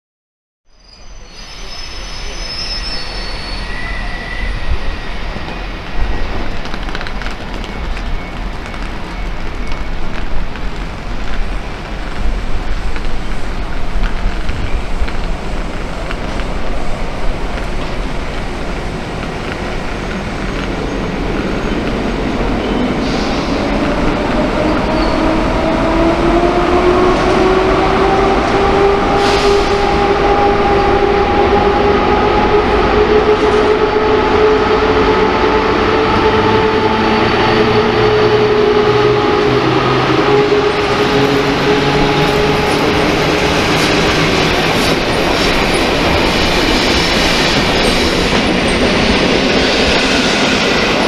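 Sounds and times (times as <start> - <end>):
high wheel squeals: 0.8 - 6.6
train rumbling on rails: 1.0 - 51.0.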